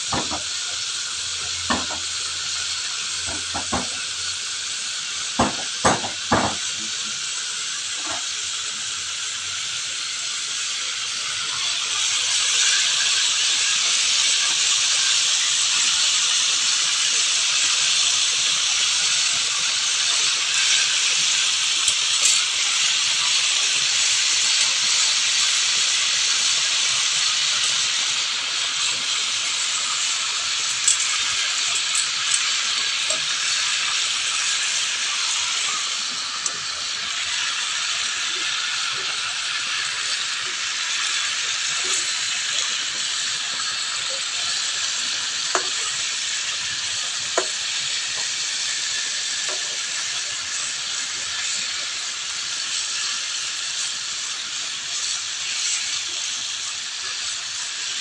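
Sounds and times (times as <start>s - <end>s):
fish frying in oil: 0.0s - 58.0s.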